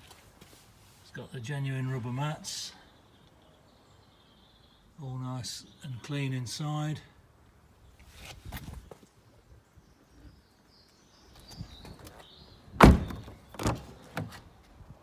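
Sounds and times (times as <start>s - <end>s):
car door shutting: 12.8s - 14.4s.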